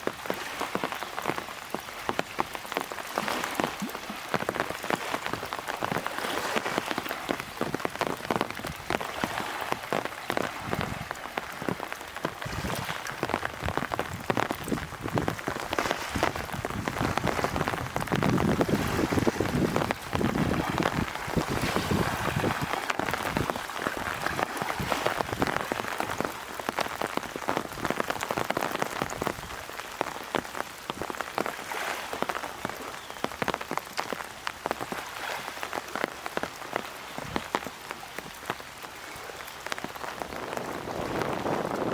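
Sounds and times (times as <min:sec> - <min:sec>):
heavy rain spattering: 0:00.0 - 0:41.9
low surge of wind: 0:40.1 - 0:41.9.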